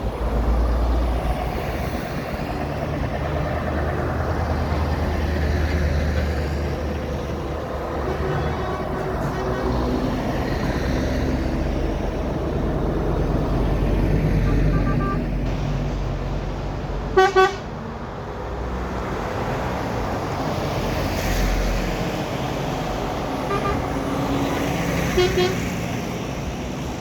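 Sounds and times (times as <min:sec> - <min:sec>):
truck engine rumble: 0:00.0 - 0:27.0
vehicle horn toots: 0:08.0 - 0:09.9, 0:14.5 - 0:15.3, 0:17.1 - 0:17.7, 0:23.5 - 0:23.9, 0:25.1 - 0:25.7.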